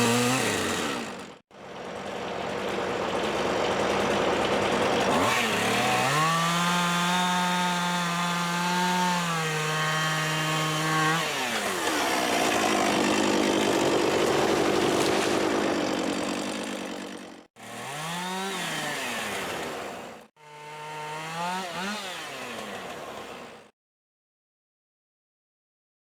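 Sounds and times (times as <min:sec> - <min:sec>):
chainsaw cutting wood: 0:00.0 - 0:23.7.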